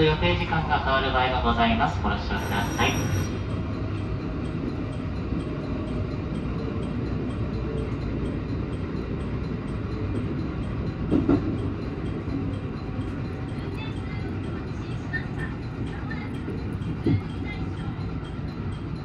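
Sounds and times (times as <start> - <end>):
train wheels rumbling on rail: 0.0 - 19.0
train bump: 11.0 - 18.0.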